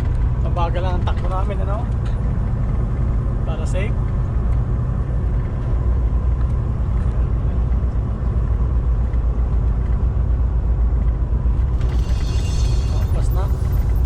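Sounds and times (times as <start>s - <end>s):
truck engine and tyres droning: 0.0s - 14.0s.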